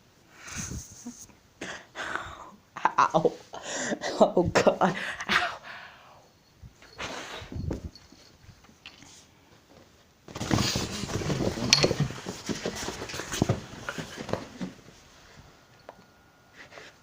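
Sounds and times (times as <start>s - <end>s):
cat scuffling and rustling: 6.7s - 15.6s.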